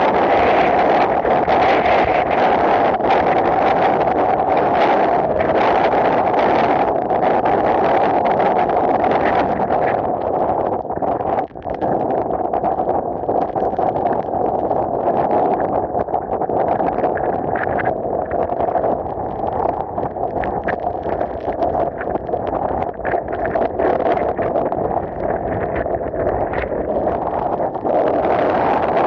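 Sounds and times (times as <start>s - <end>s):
wind blasting across microphone: 0.0s - 29.0s.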